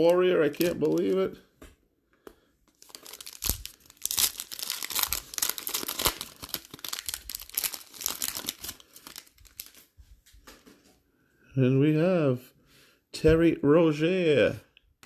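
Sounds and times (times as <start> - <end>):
wrapper tearing and crinkling: 0.0 - 1.2, 2.7 - 9.9.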